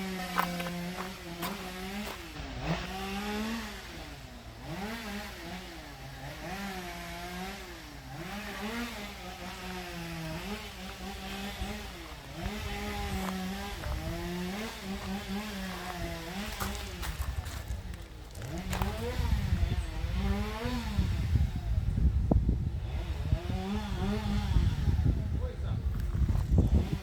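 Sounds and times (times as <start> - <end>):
small engine revving: 0.0 - 27.0.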